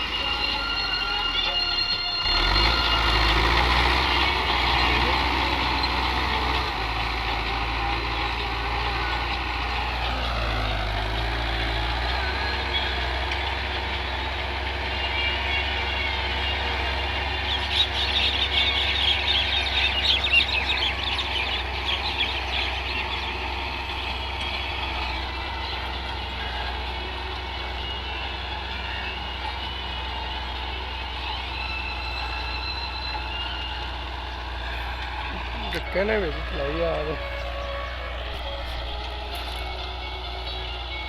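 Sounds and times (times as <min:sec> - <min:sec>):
high warbling squeaks: 0:00.0 - 0:11.1
tractor engine droning: 0:00.0 - 0:41.0.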